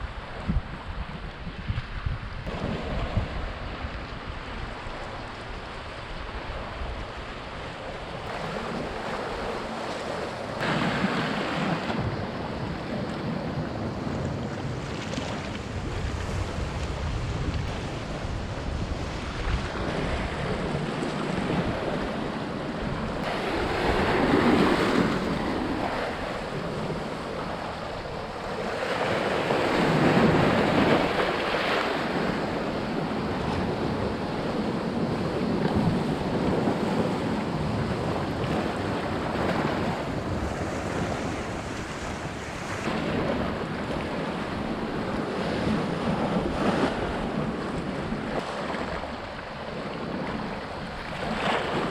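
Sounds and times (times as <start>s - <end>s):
sea waves washing in: 0.0s - 51.9s
wind buffeting microphone: 0.0s - 51.9s.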